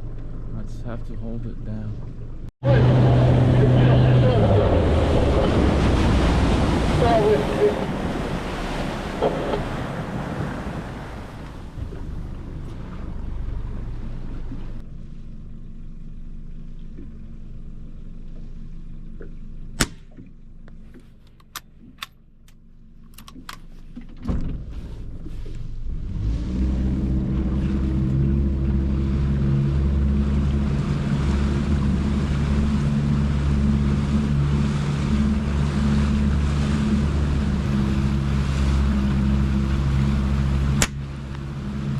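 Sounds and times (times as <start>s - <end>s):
waves: 0.0s - 15.4s, 23.2s - 41.9s
boat motor running: 0.0s - 41.9s
wind: 0.0s - 41.9s
sharp crack: 19.8s - 20.3s, 37.6s - 41.5s
light clicks: 20.9s - 23.7s.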